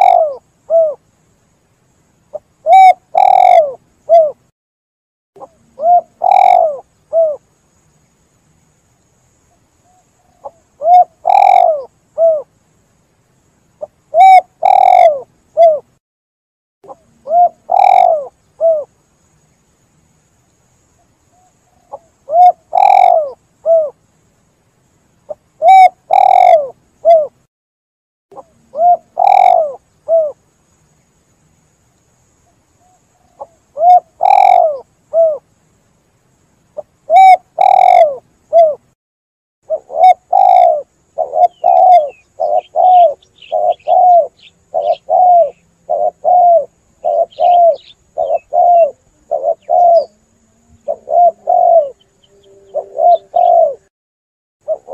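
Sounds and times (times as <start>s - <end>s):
dove cooing: 0.0s - 1.0s, 2.3s - 4.4s, 5.4s - 7.4s, 9.9s - 12.5s, 13.8s - 15.9s, 16.9s - 18.9s, 21.4s - 24.0s, 25.3s - 27.4s, 28.4s - 30.4s, 32.8s - 35.4s, 36.8s - 38.8s, 39.7s - 53.9s, 54.6s - 54.9s.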